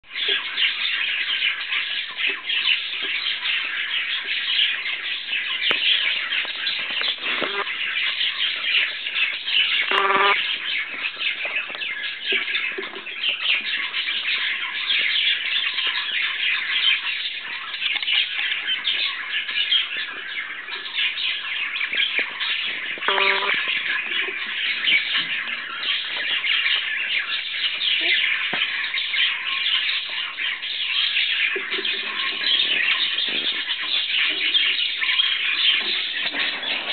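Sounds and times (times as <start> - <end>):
budgerigars chattering: 0.1 - 36.9
harsh bird squawk: 7.2 - 7.8, 9.8 - 10.6, 23.0 - 23.8.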